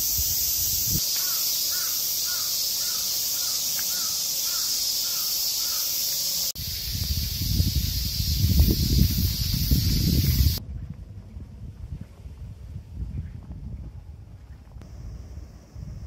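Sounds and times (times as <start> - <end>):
steady high hiss: 0.0 - 10.6
bird calling: 1.0 - 6.5.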